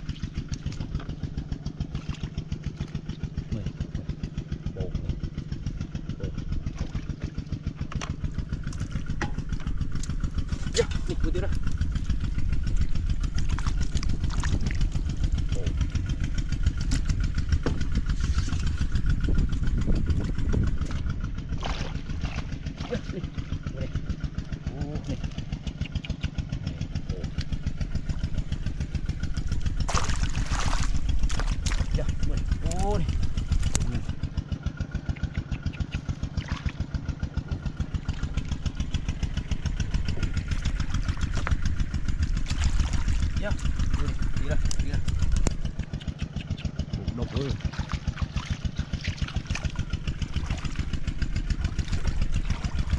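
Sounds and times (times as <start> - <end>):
small engine idling: 0.0 - 52.9.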